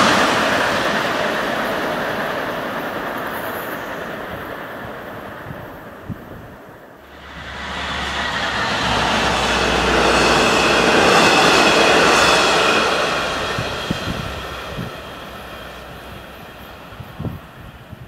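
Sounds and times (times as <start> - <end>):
passenger train passing: 0.0 - 18.0.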